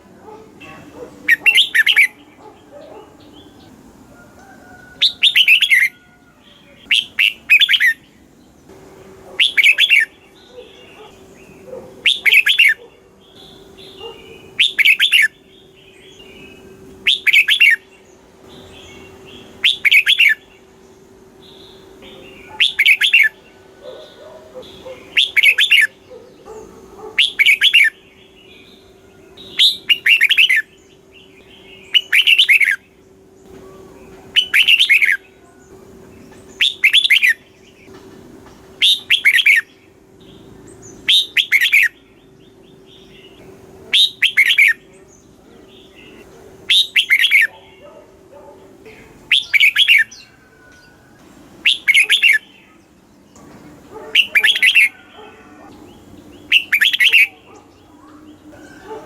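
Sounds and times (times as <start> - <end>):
bird singing whistled phrases: 6.8 - 8.0, 13.4 - 17.8, 18.9 - 20.5, 25.2 - 25.9, 29.4 - 30.7, 31.8 - 32.8, 33.6 - 35.3, 36.6 - 37.4, 38.8 - 39.7, 41.0 - 42.0, 43.9 - 44.8, 46.7 - 47.6, 49.3 - 51.0, 51.6 - 52.8, 54.2 - 55.0, 56.5 - 58.8.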